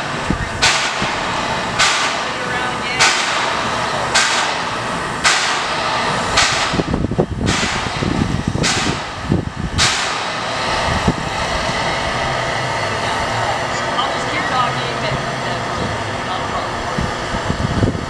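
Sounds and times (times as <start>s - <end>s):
steam hissing: 0.0s - 18.0s
steam locomotive chuffing: 0.0s - 18.0s.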